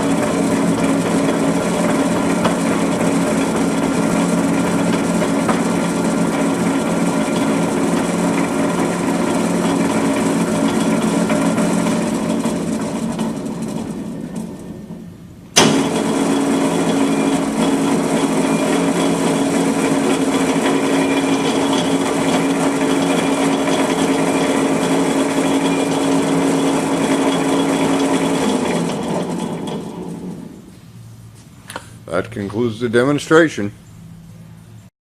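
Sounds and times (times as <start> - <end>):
electric drive humming: 0.0 - 34.9.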